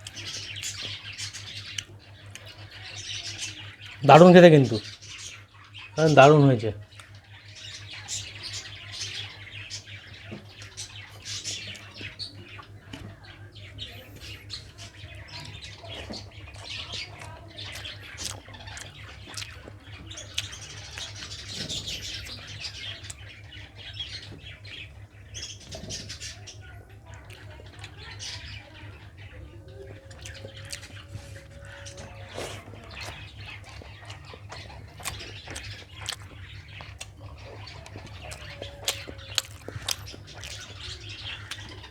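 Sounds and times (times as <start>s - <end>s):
person chewing food: 15.4s - 22.4s, 29.8s - 41.9s
small wet mouth clicks: 17.1s - 19.6s, 32.3s - 37.2s, 37.8s - 40.7s.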